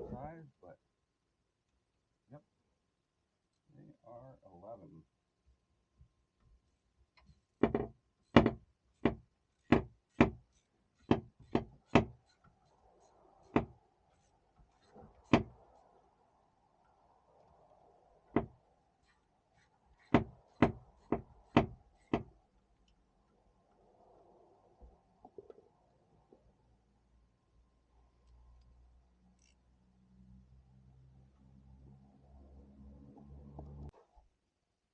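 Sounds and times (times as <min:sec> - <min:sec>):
sharp knocks on engine bolts: 0:07.6 - 0:10.4, 0:11.0 - 0:12.2, 0:20.0 - 0:22.3.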